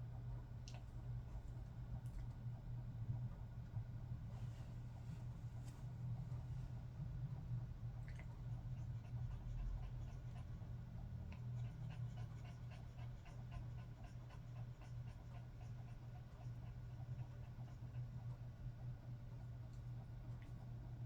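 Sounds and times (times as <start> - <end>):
low steady hum: 0.0 - 21.0
dog panting: 4.2 - 21.0.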